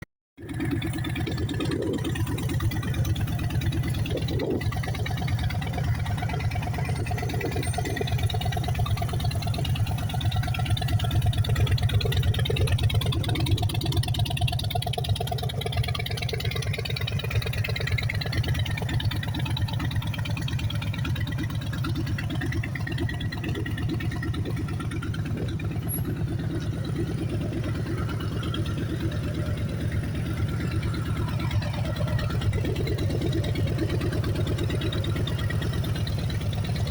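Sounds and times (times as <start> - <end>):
motorcycle engine idling: 0.4 - 36.9.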